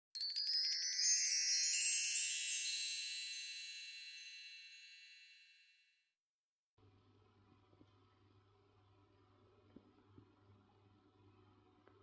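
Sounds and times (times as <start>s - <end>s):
shimmering chimes: 0.2s - 5.8s.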